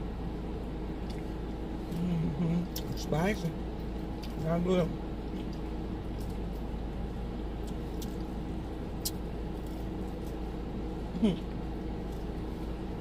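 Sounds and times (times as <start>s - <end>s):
air conditioning hum: 0.0s - 13.0s
car engine running: 0.0s - 13.0s.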